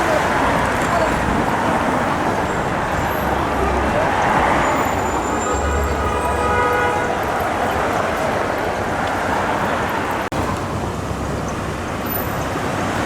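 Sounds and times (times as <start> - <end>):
city street traffic: 0.0 - 13.0
multi-tone horn blast: 5.0 - 7.4.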